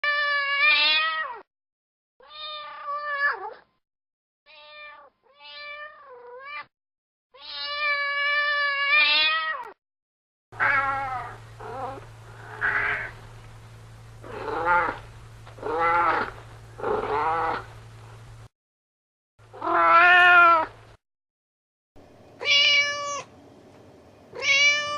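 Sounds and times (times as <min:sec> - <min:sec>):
cat meowing: 0:00.0 - 0:01.4, 0:02.2 - 0:03.6, 0:04.5 - 0:06.7, 0:07.4 - 0:09.8, 0:10.6 - 0:13.1, 0:14.2 - 0:15.0, 0:15.6 - 0:16.3, 0:16.9 - 0:17.7, 0:19.6 - 0:20.7, 0:22.4 - 0:23.3, 0:24.3 - 0:24.9
low hum: 0:10.6 - 0:18.5.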